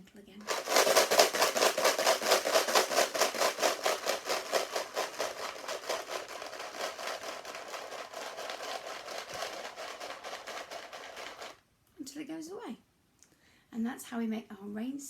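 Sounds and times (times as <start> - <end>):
pasta rattling in plastic tub: 0.4 - 11.6.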